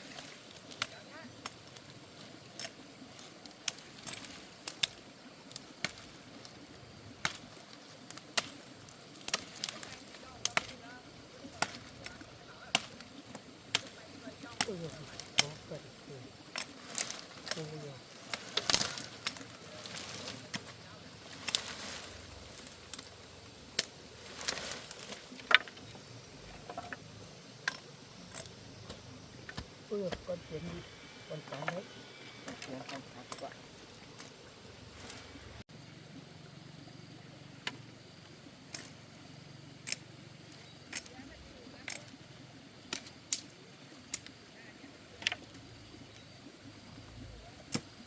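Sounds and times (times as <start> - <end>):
soft rustling: 7.4 - 27.2.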